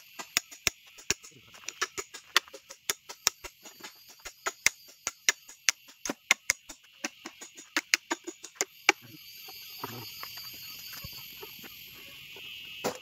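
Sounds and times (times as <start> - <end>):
blade chopping bamboo: 0.0 - 9.0
steady high hiss: 0.0 - 13.0.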